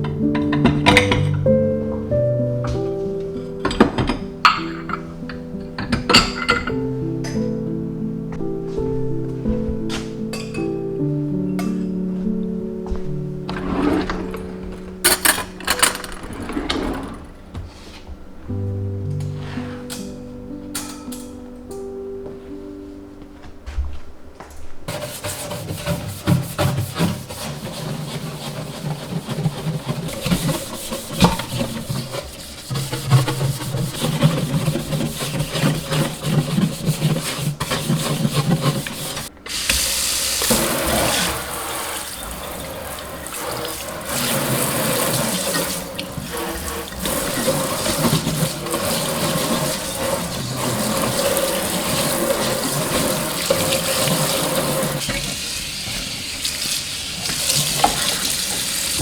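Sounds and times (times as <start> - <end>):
tap running into sink: 29.3 - 59.0.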